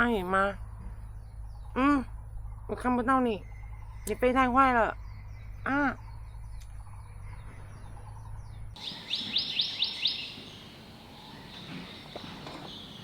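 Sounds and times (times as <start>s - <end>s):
bird chirping: 0.0s - 13.0s
faint forest background: 0.0s - 13.0s
steady low hum: 0.0s - 13.0s.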